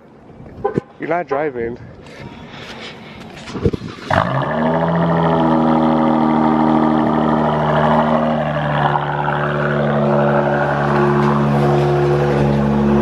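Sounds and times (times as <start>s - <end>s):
car engine running at low revs: 4.1s - 13.0s.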